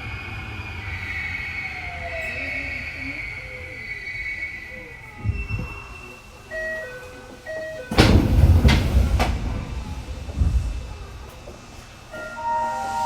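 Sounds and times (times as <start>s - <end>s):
train doors sliding open: 5.2s - 13.0s
electronic door chime: 12.1s - 13.0s.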